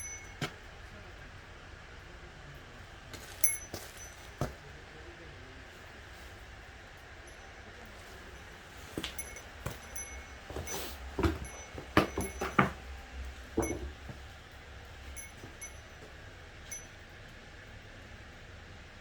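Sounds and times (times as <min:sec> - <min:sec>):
firewood and tools knocking: 0:08.9 - 0:14.3.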